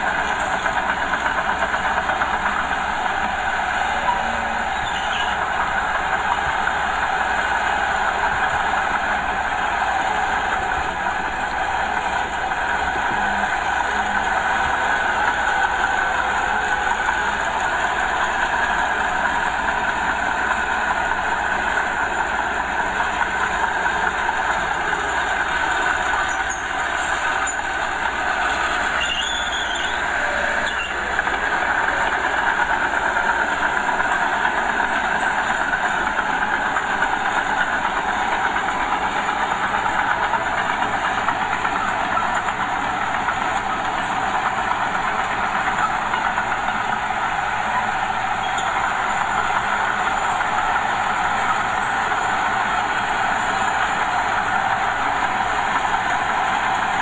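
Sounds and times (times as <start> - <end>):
bulldozer diesel engine: 0.0 - 57.0
steel tracks clanking: 0.0 - 57.0.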